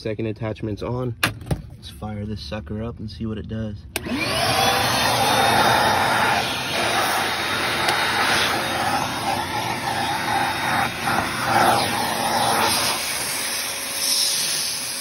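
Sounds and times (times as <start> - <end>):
shop vacuum running: 3.9 - 15.0.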